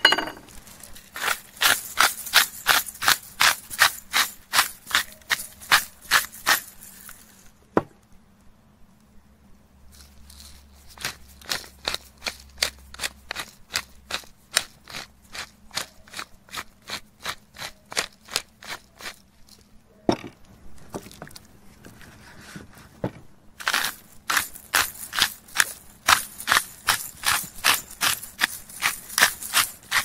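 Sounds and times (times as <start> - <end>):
salt mill grinding: 0.1 - 7.3, 10.0 - 19.6, 23.6 - 30.0.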